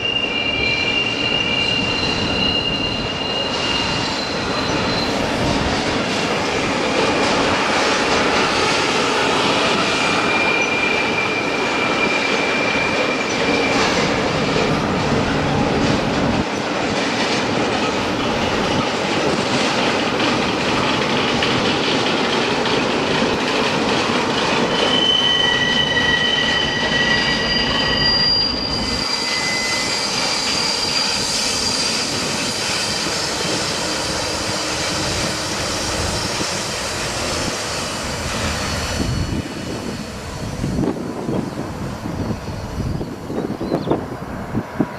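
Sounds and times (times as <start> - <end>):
steel wheels squealing: 0.0 - 5.8, 7.2 - 15.9, 20.5 - 44.0
railway wagons rumbling on track: 0.0 - 44.9
wheels clickety-clack: 12.3 - 25.0.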